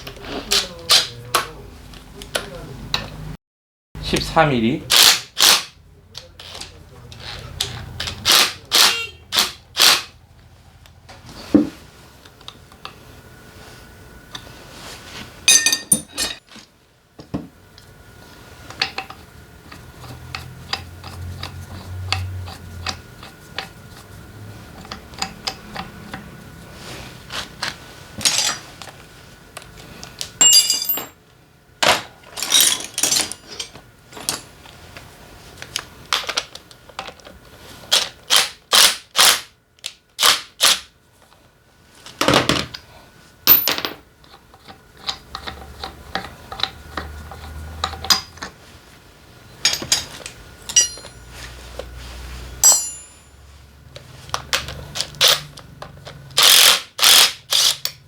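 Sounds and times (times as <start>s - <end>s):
metal parts ringing: 15.5s - 16.4s, 30.4s - 31.2s, 32.4s - 34.5s, 49.6s - 51.5s, 52.6s - 53.4s
hand tools clicking and knocking: 43.5s - 48.6s, 49.6s - 51.9s, 52.6s - 53.3s, 54.3s - 58.0s.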